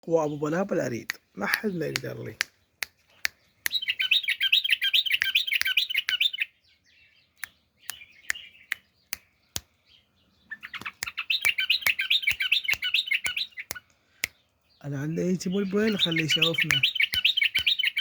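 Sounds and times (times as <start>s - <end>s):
bird warbling chirps: 3.4s - 18.0s
sharp clicks: 16.6s - 18.0s.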